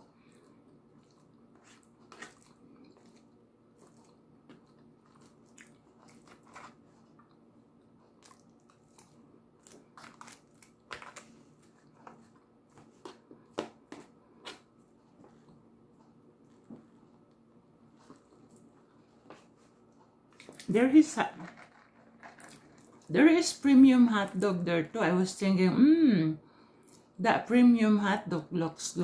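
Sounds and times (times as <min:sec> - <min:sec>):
wet mouth chewing sounds: 0:00.4 - 0:10.8.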